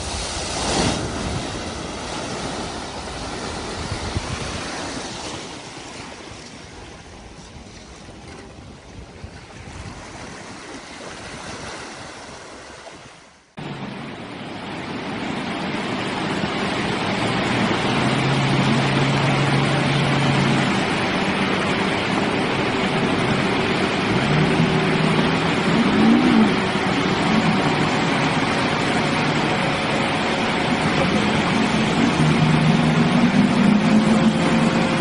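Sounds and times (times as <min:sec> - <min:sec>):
truck churning through water: 0:00.0 - 0:08.3, 0:13.6 - 0:35.0
water rushing: 0:00.0 - 0:35.0
low engine note: 0:13.6 - 0:35.0.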